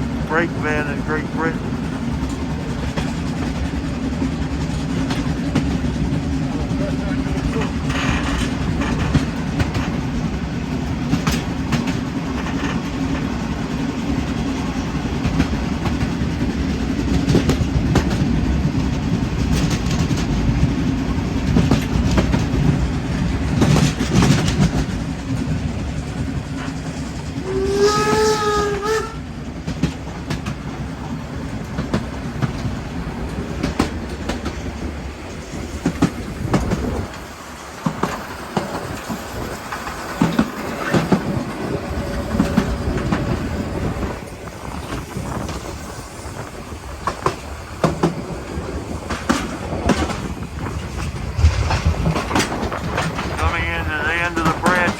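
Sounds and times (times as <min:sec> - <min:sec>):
steam train rumbling: 0:00.0 - 0:54.9
wheels clicking over rail joints: 0:01.7 - 0:53.4
steam whistle: 0:27.4 - 0:29.2.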